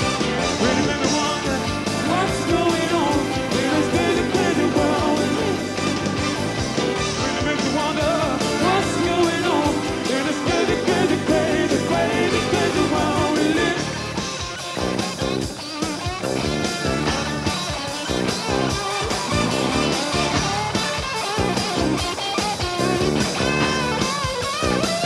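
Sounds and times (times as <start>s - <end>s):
rock band playing live: 0.0s - 25.0s
person singing lead vocal: 0.4s - 5.8s, 7.2s - 13.9s.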